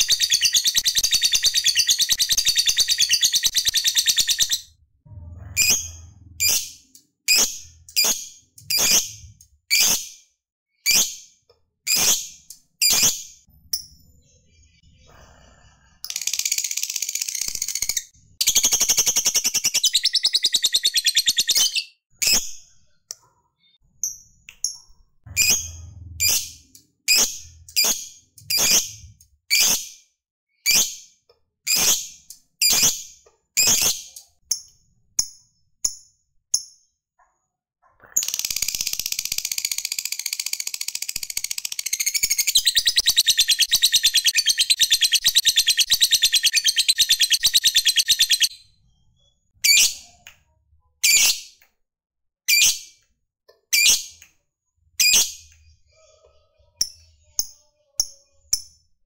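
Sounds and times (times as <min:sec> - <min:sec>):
bird sharp chirps: 0:00.0 - 0:09.2, 0:16.3 - 0:23.0, 0:41.2 - 0:50.0
bird chattering trills: 0:41.2 - 0:48.5.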